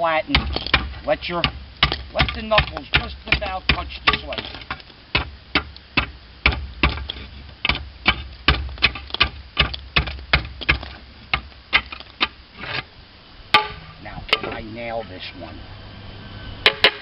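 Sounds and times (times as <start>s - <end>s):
hammer chopping slate: 0.3s - 11.9s.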